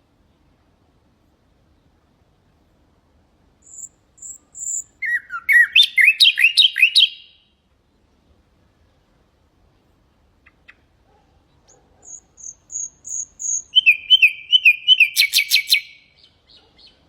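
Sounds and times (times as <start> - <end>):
nightingale singing: 3.6 - 7.6, 10.4 - 17.0.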